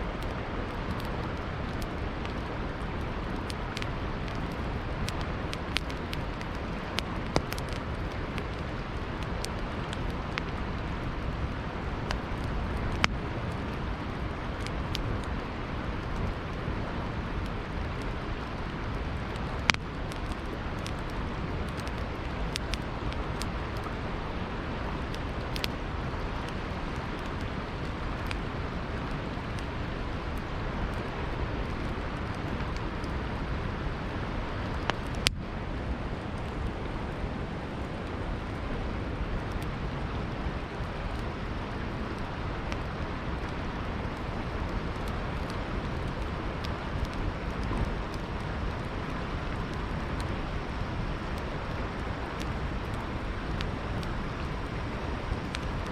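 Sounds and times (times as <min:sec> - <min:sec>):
campfire crackling: 0:00.0 - 0:55.9
burning wood popping: 0:00.1 - 0:35.5, 0:39.3 - 0:55.9.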